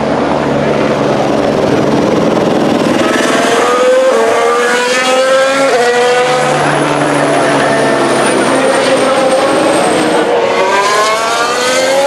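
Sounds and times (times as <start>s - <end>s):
other racing cars: 0.0s - 12.0s
racing car accelerating past: 2.8s - 12.0s.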